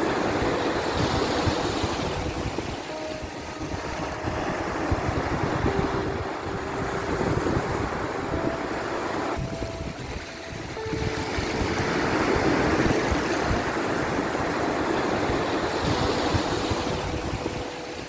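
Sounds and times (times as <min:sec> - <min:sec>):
sea surf washing on shore: 0:00.0 - 0:18.0.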